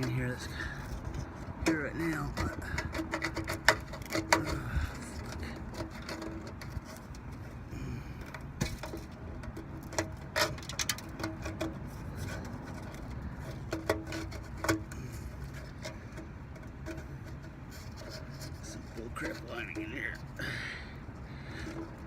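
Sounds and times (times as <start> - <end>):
steady low background hum: 0.0 - 22.0.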